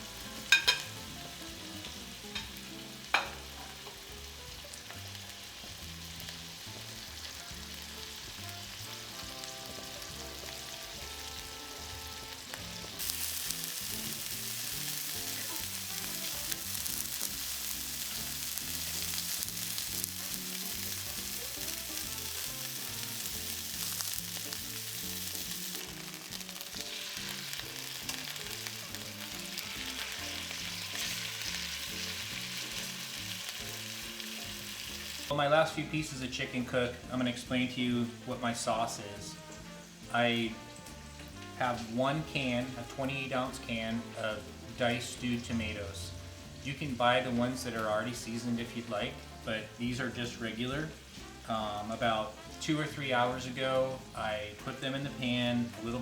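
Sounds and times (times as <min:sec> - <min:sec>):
chicken sizzling in a pan: 0:00.0 - 0:56.0.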